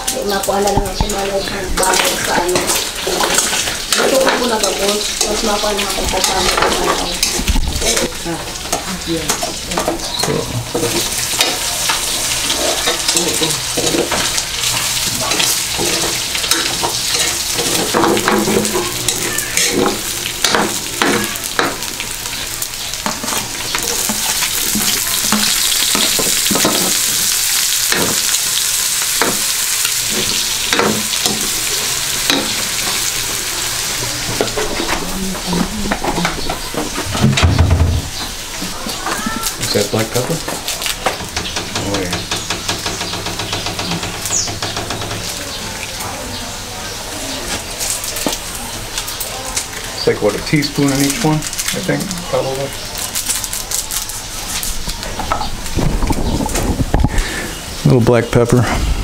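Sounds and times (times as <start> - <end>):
meat sizzling in hot oil: 0.0 - 57.9
metal ladle scraping a wok: 13.8 - 22.0.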